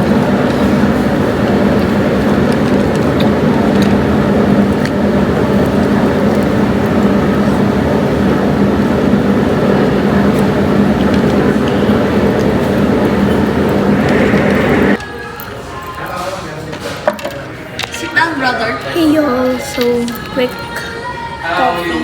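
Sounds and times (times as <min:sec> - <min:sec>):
road and engine drone in vehicle: 0:00.0 - 0:15.0.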